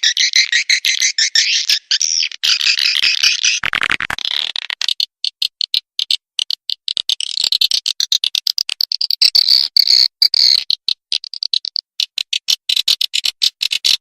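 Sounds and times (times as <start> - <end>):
swiftlet chirps and clicks: 0.0 - 4.0
buzzy bird chatter: 0.0 - 6.2.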